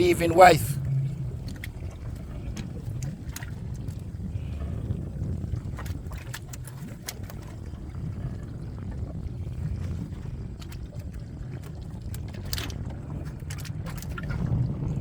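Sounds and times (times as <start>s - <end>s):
boat low rumble: 0.0s - 9.6s.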